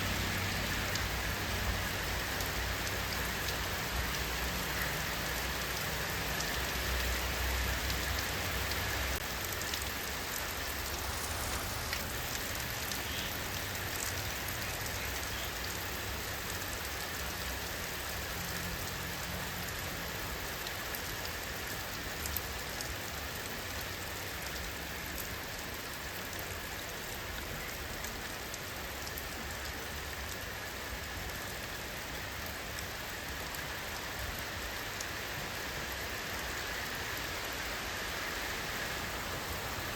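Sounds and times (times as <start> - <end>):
rain falling: 0.0 - 39.9
raindrops ticking: 0.5 - 35.2.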